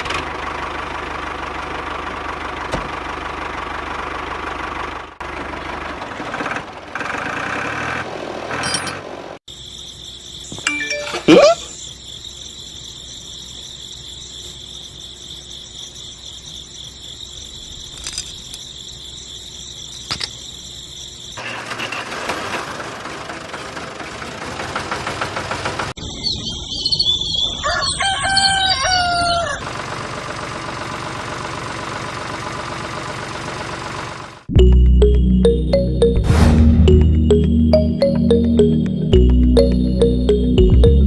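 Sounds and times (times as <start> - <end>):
rooster crowing: 27.6 - 29.7.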